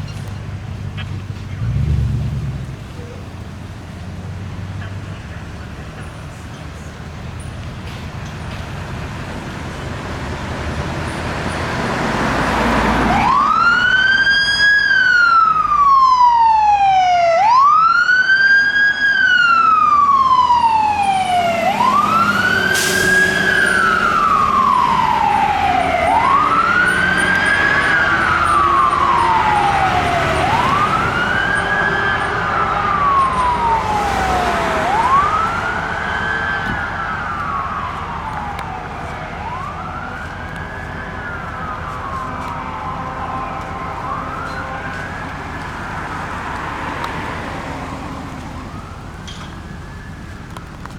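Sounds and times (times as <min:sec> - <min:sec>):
fire truck engine: 0:00.0 - 0:50.9
road noise: 0:00.0 - 0:50.9
siren wailing: 0:12.6 - 0:50.9.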